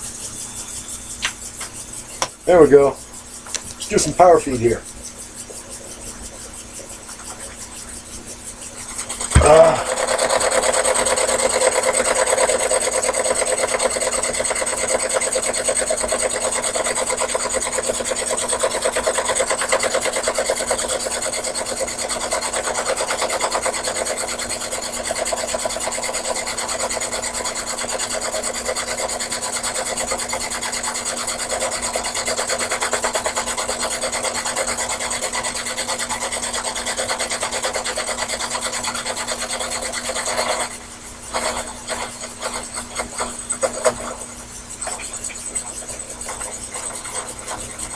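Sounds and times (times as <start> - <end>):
lathe cutting with rasping whir: 7.9 - 47.9.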